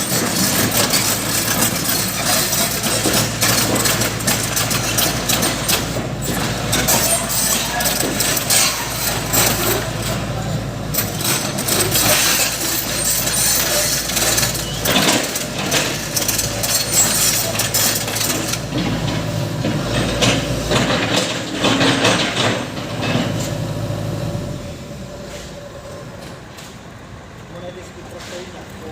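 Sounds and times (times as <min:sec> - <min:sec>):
metallic clanks and knocks: 0:00.0 - 0:10.2, 0:11.0 - 0:23.6
diesel engine running: 0:00.0 - 0:26.6.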